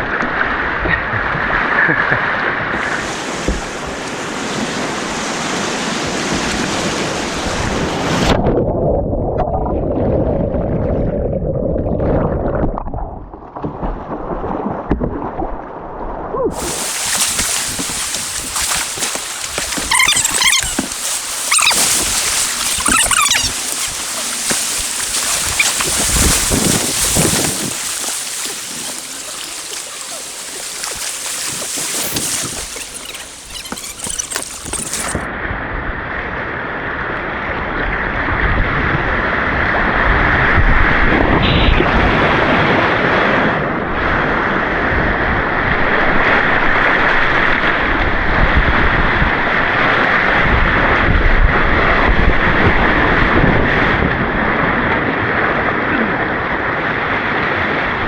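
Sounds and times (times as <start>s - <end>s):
water rushing over rapids: 2.8s - 8.0s, 16.6s - 35.2s.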